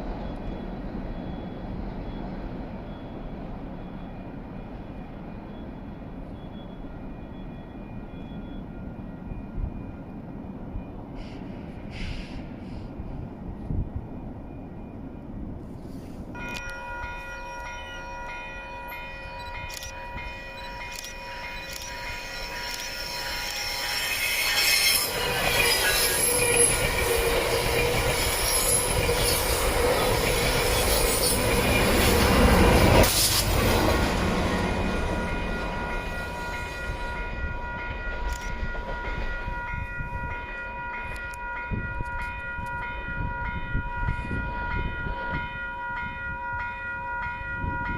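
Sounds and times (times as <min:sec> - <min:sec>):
train passing close: 0:00.0 - 0:47.9
high-pitched ringing tones: 0:16.4 - 0:32.8, 0:33.9 - 0:47.9.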